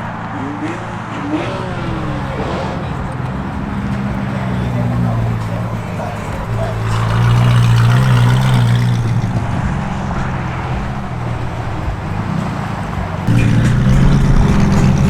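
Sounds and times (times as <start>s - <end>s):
car engines running: 0.0s - 15.0s
louder engine note: 13.3s - 15.0s.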